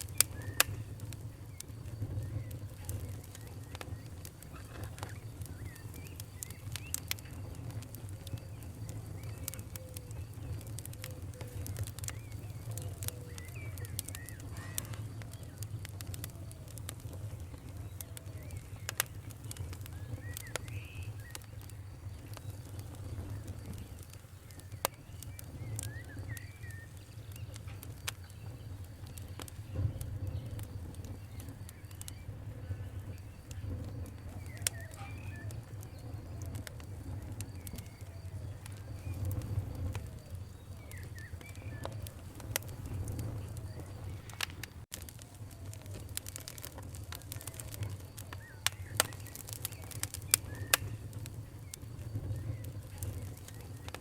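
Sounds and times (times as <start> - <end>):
campfire crackling and popping: 0.0 - 54.0
faint bird chirps: 0.0 - 54.0
low rumble of flames: 0.0 - 54.0.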